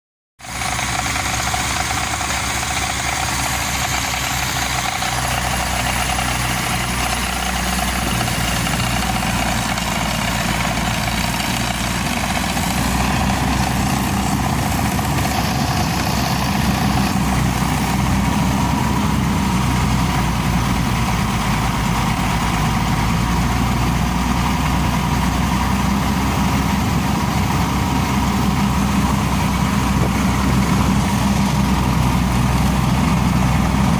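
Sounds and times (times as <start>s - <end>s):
air compressor running: 0.5s - 19.6s.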